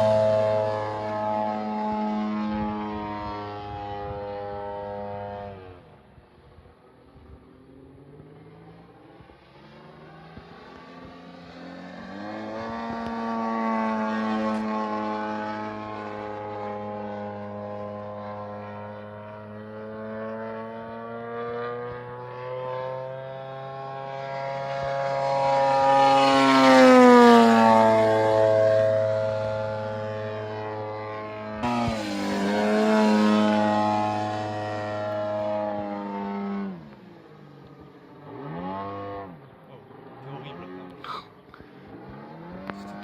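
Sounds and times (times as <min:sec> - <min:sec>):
model airplane engine passing: 0:00.0 - 0:43.0.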